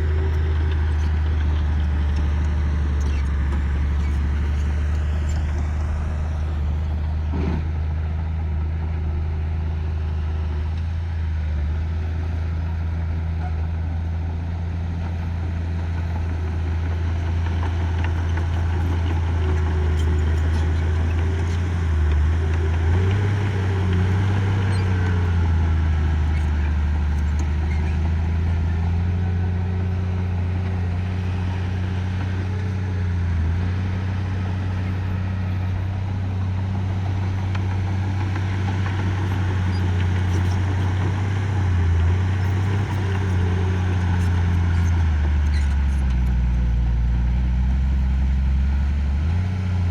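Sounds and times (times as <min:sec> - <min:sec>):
heavy machinery diesel engine: 0:00.0 - 0:49.9.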